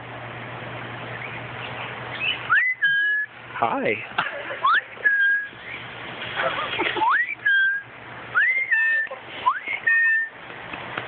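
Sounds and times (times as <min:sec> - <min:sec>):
bird whistling two-part call: 0:01.2 - 0:03.3, 0:07.0 - 0:10.3.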